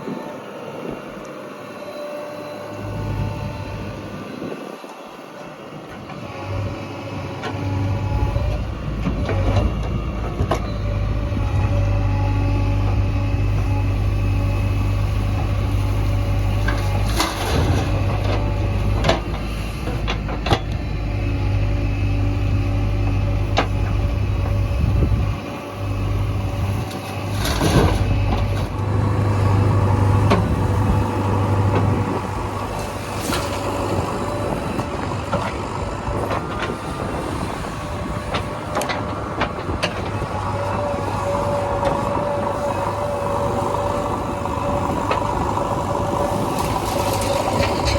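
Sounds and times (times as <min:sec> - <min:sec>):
diesel engine running: 0:05.6 - 0:47.9.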